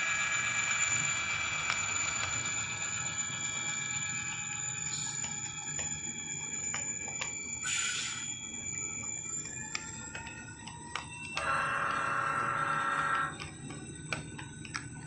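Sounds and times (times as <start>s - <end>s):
model locomotive engine sound: 0.0s - 14.8s
air hiss: 7.7s - 8.2s.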